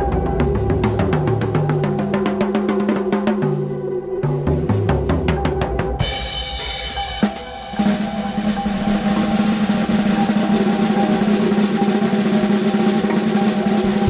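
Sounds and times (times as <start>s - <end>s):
drum fill down the toms: 0.0s - 3.6s, 4.4s - 14.0s
fast drum roll: 4.5s - 14.0s.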